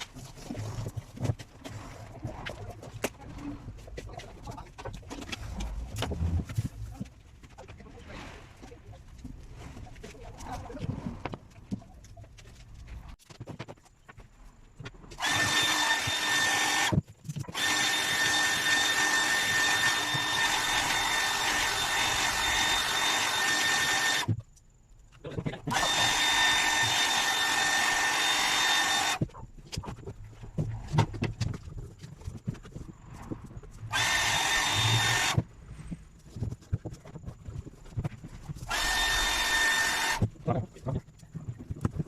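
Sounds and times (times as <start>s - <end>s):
power tool whining: 15.1s - 24.4s, 25.7s - 29.3s, 33.9s - 35.4s, 38.6s - 40.3s.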